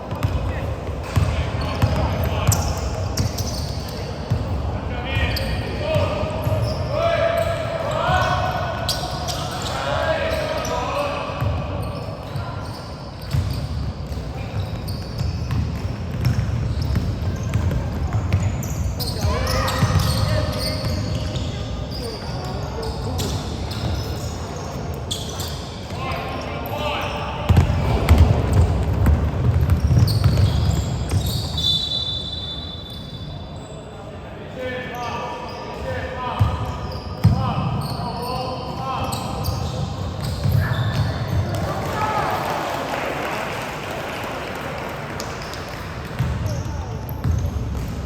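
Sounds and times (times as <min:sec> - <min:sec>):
basketball bouncing on court: 0:00.1 - 0:03.6, 0:13.2 - 0:21.4, 0:27.5 - 0:31.6, 0:39.1 - 0:41.8, 0:45.2 - 0:48.0
short high squeaks: 0:30.0 - 0:33.9.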